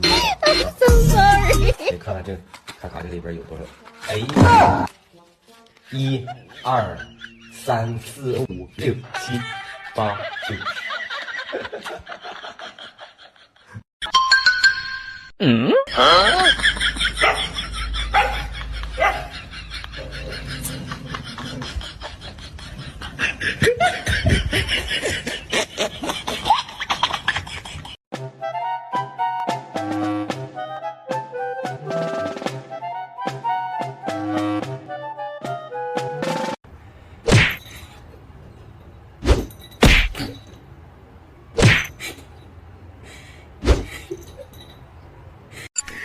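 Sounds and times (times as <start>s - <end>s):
people laughing: 9.0s - 13.8s, 15.9s - 28.0s.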